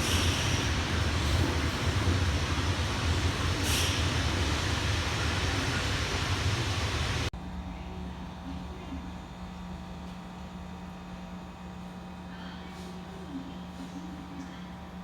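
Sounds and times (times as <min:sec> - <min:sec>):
train wheels and motors rumbling: 0:00.0 - 0:10.6
short hiss: 0:03.6 - 0:04.2.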